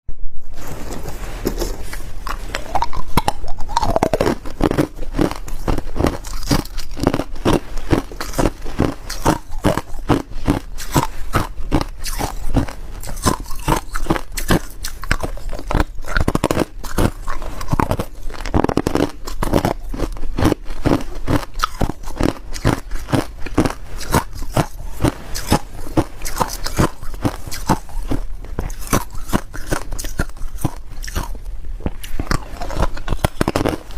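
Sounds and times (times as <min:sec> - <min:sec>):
person crunching ice: 0:01.4 - 0:31.4, 0:32.0 - 0:33.9.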